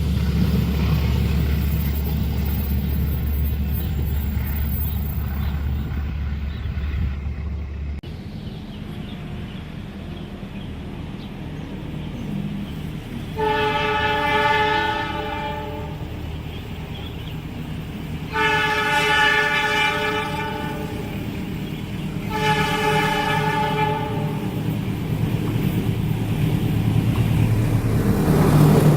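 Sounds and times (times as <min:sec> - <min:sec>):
low rumble of train: 0:00.0 - 0:28.9
train air horn blasts: 0:13.3 - 0:16.2, 0:18.3 - 0:21.3, 0:22.2 - 0:24.6.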